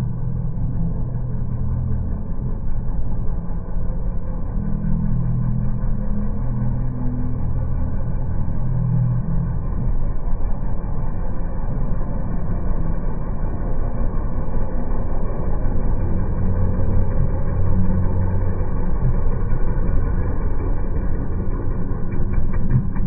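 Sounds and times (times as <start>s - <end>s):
quad bike engine running: 11.7s - 23.0s.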